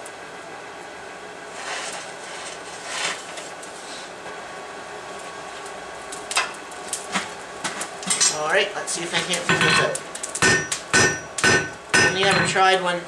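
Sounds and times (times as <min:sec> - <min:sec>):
forge hissing: 0:08.0 - 0:12.7.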